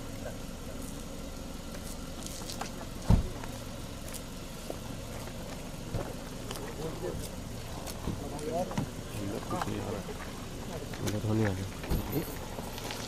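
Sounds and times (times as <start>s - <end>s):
car engine idling: 0.0s - 13.0s
car door slamming: 3.0s - 3.5s.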